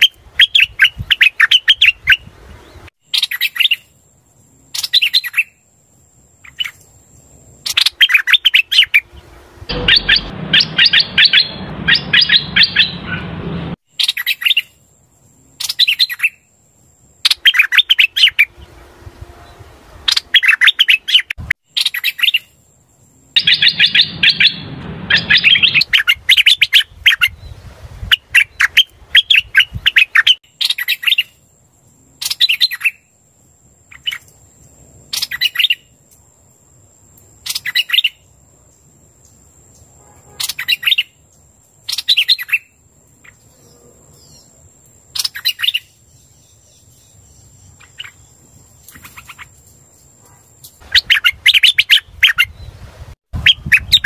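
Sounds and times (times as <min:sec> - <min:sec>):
bird singing rapid chirps: 0:07.6 - 0:14.8, 0:17.3 - 0:18.7, 0:20.1 - 0:22.6, 0:23.3 - 0:27.5, 0:40.4 - 0:41.2, 0:50.8 - 0:52.7, 0:53.4 - 0:54.0.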